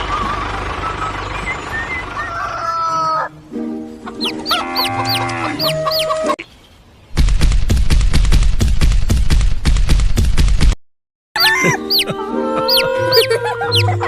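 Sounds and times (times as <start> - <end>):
rooster crowing: 2.2 - 3.3, 4.2 - 6.4, 11.4 - 13.9.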